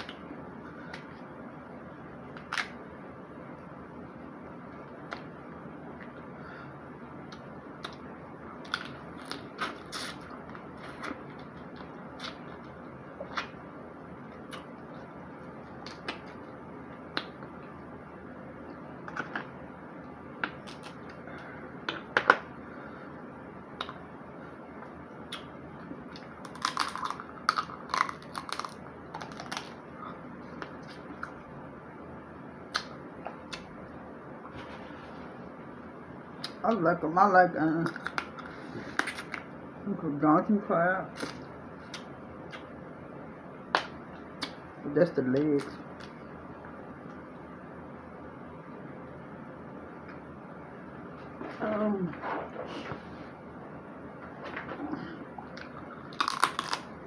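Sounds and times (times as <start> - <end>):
low background hiss: 0.0 - 57.0
crab shell cracking: 26.2 - 29.8, 56.1 - 56.9.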